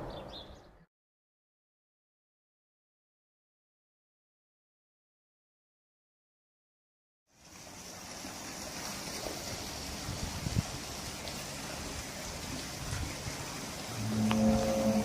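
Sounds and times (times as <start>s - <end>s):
outdoor background hiss: 7.3s - 15.0s.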